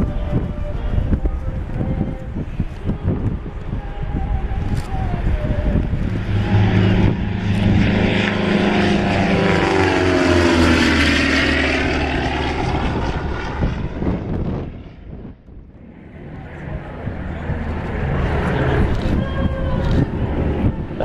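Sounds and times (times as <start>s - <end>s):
propeller aircraft flying past: 4.3s - 21.0s.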